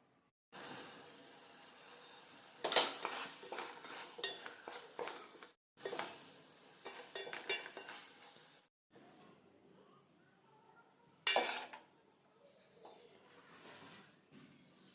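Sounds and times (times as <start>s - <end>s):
metal spoon scraping a pot: 2.6s - 6.0s.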